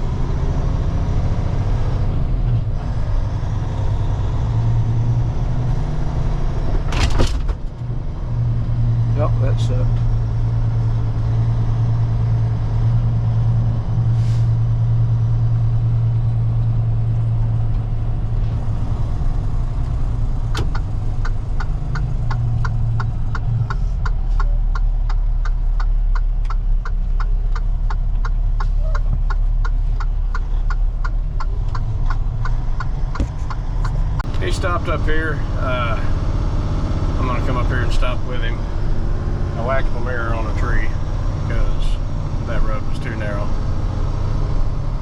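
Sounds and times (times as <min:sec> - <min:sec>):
truck diesel engine running: 0:00.0 - 0:45.0
turn signal ticking: 0:19.4 - 0:35.0.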